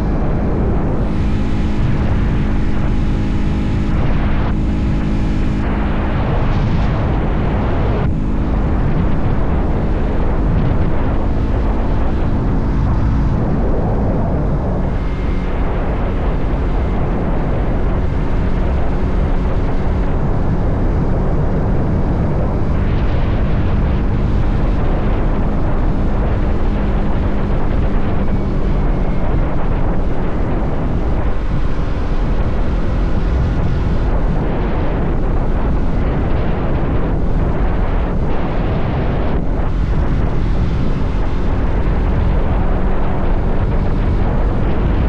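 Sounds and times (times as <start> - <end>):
motorcycle engine running: 0.0 - 45.0
wind rushing over microphone: 0.0 - 45.0.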